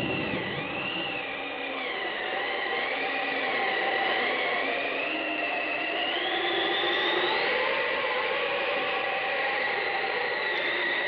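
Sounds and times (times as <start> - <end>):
high wavering whistling tone: 0.0 - 3.0.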